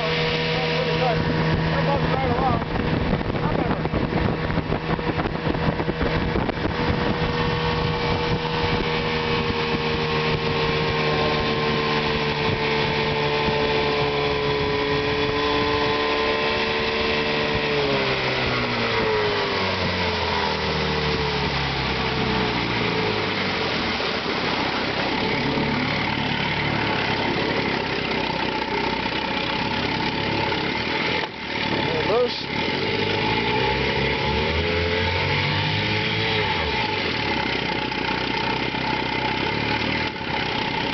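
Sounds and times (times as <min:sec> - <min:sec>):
outboard motor running: 0:00.0 - 0:40.9.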